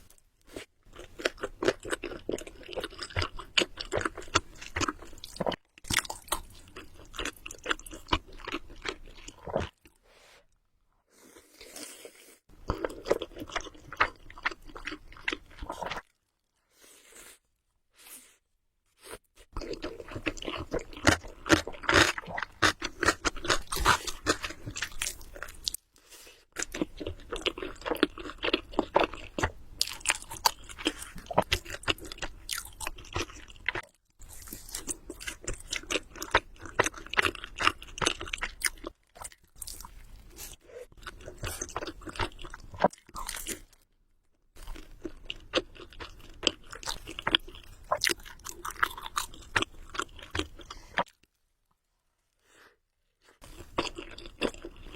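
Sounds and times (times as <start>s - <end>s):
close-miked noodle chewing: 0.6s - 10.0s, 19.2s - 43.8s, 44.6s - 51.4s, 53.3s - 54.9s.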